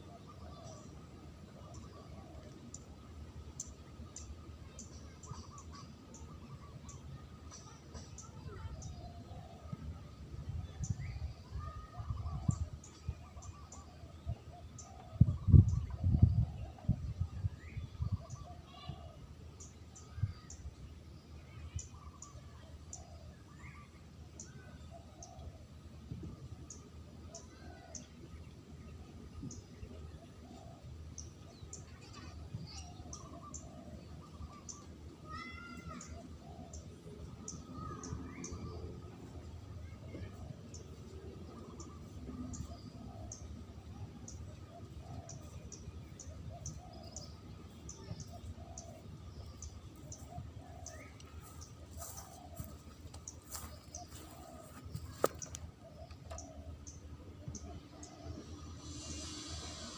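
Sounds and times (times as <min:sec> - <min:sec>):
dove cooing faintly: 0:31.9 - 0:39.1, 0:40.1 - 0:59.9
dove cooing: 0:53.5 - 0:56.8.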